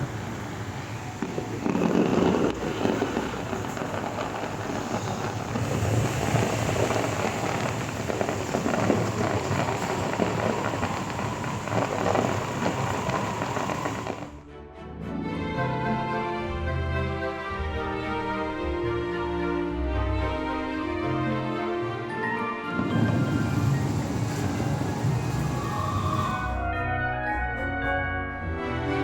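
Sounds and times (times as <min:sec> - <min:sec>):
fireworks booming: 0:00.0 - 0:14.4, 0:22.7 - 0:26.7
fireworks crackling: 0:00.0 - 0:14.4, 0:22.7 - 0:26.7.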